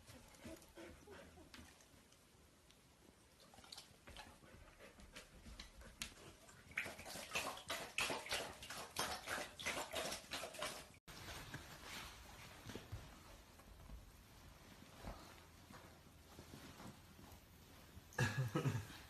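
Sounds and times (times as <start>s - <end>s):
water splashing: 6.5s - 11.0s.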